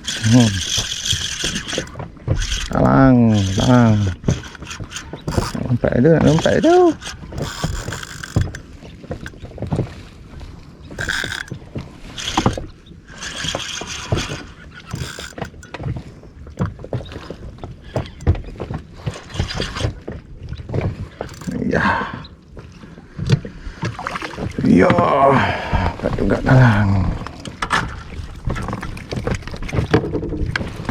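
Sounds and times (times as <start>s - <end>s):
knocks and scrapes on inflatable boat: 0.0s - 21.7s, 25.7s - 30.9s
water splashing: 0.0s - 30.9s.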